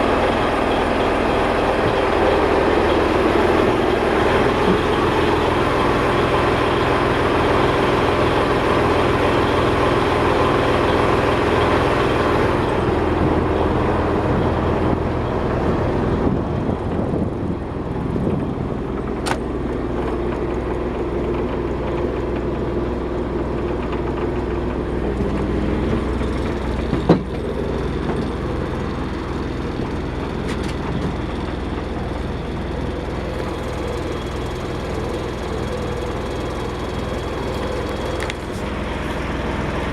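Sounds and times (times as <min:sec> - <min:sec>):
marine diesel engine running: 0:00.0 - 0:39.9
sharp click: 0:19.2 - 0:19.4.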